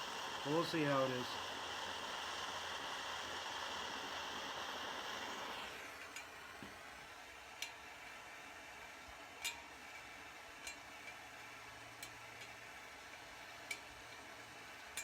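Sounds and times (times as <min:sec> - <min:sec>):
heating tool hissing: 0:00.0 - 0:15.0
light metallic ticks: 0:07.6 - 0:07.8, 0:09.4 - 0:11.2, 0:12.0 - 0:12.6, 0:13.6 - 0:14.3.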